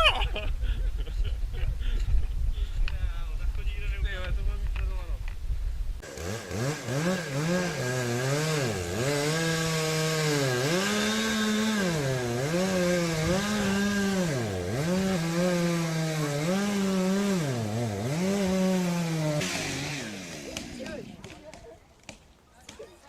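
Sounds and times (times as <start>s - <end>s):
chainsaw cutting wood: 6.0s - 22.2s.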